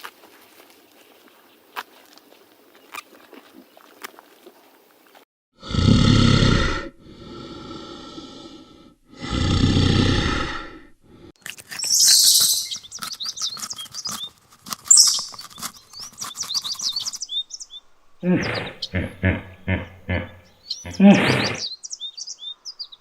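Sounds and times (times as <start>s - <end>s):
bird chirping rapidly: 11.7s - 23.0s
animal's deep calls: 18.2s - 21.7s.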